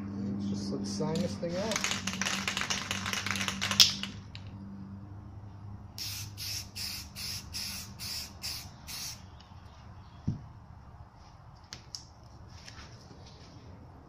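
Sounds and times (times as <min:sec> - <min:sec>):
spray can rattling: 0:01.2 - 0:04.4, 0:06.0 - 0:09.2
short spray hisses: 0:06.0 - 0:09.2.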